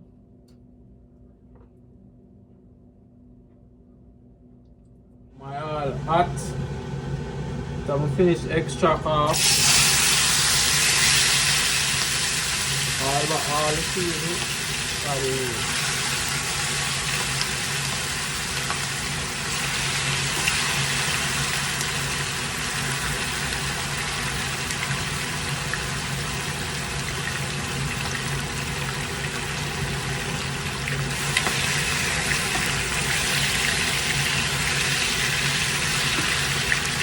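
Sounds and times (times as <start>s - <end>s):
low steady hum: 0.0s - 37.0s
chicken frying in hot oil: 9.3s - 37.0s.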